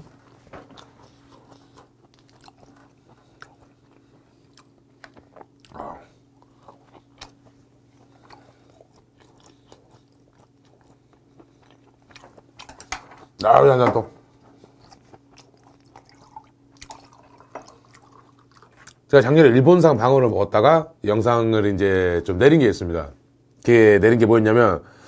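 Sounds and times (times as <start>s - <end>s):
person chewing: 0.2s - 13.4s, 14.3s - 19.1s.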